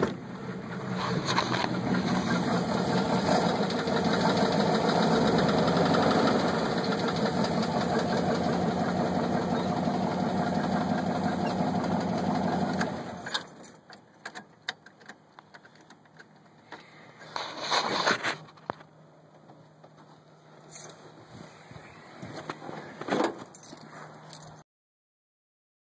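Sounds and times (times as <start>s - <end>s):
pickup engine knocking: 1.6s - 13.0s.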